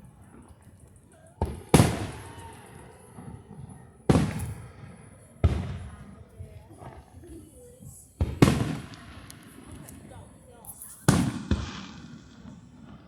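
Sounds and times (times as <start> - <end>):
firework bangs with echo: 1.4 - 2.6, 3.2 - 6.2, 8.2 - 9.8, 11.1 - 13.0.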